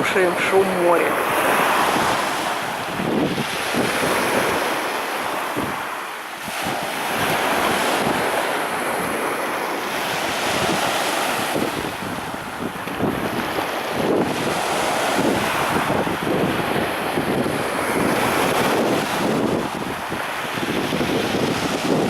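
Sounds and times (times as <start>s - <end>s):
surf breaking on beach: 0.0s - 22.0s
wind buffeting microphone: 0.0s - 22.0s.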